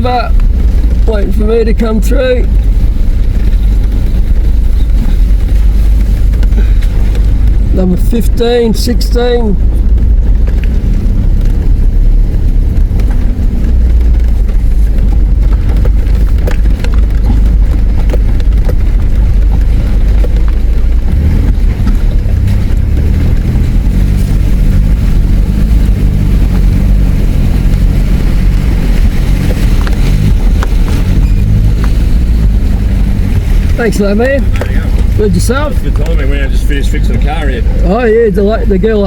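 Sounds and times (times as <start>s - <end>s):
vehicle engine rumbling: 0.0s - 39.0s
knocks and bumps: 9.5s - 38.0s.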